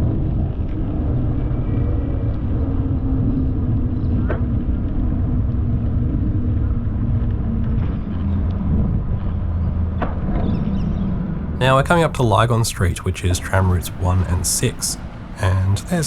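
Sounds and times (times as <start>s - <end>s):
road traffic rumble: 11.6s - 16.0s.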